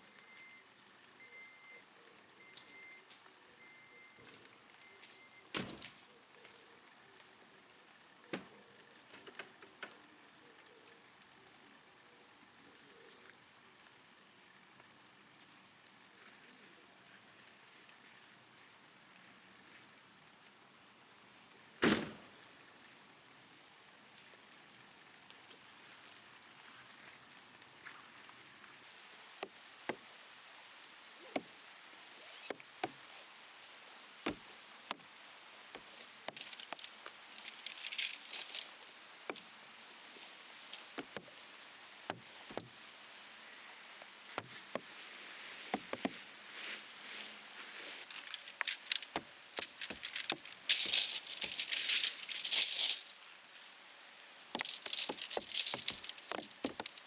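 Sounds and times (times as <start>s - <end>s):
rain hissing: 27.6s - 57.0s
raindrops tapping on plastic sheet: 31.2s - 33.3s, 34.0s - 42.9s, 44.0s - 45.0s, 45.6s - 46.3s, 47.9s - 53.3s, 54.5s - 57.0s.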